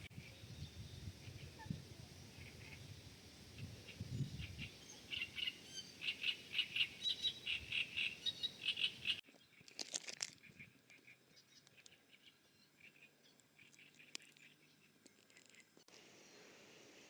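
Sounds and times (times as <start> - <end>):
small birds chirping: 0.0 - 9.8.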